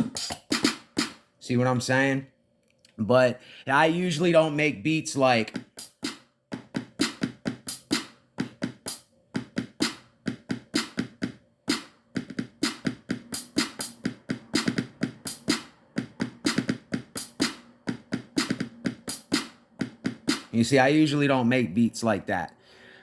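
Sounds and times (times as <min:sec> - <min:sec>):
drum machine beat: 0:00.0 - 0:01.2, 0:05.4 - 0:21.2.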